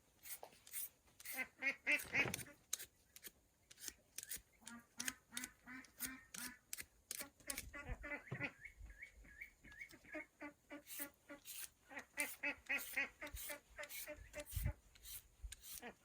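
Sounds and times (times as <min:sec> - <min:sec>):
ducks quacking: 0:01.3 - 0:02.6, 0:04.6 - 0:06.6, 0:07.5 - 0:09.0, 0:09.8 - 0:14.7.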